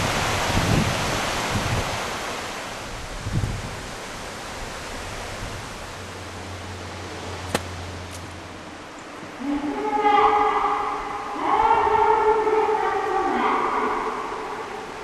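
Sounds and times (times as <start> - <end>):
wind buffeting microphone: 0.0 - 2.2, 2.8 - 5.9
river water rushing: 0.0 - 15.0.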